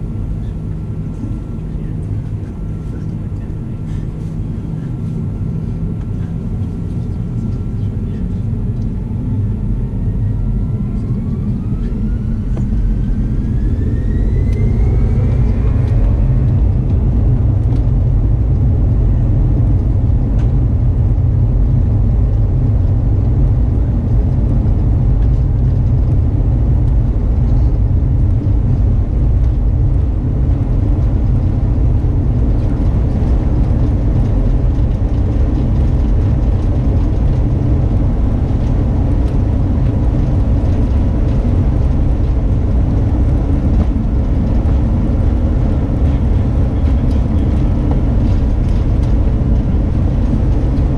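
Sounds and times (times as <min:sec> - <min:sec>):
plane rolling on runway: 0:00.0 - 0:50.9
jet engines spooling up: 0:00.4 - 0:20.5.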